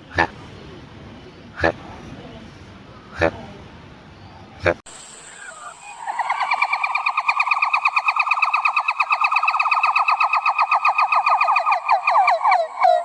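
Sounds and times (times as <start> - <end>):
primate trilling call: 5.1 - 13.0.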